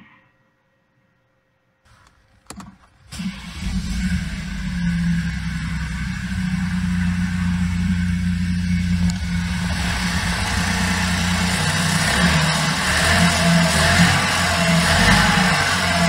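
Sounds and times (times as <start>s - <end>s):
car engine idling: 1.9s - 16.0s
hiss: 5.2s - 16.0s.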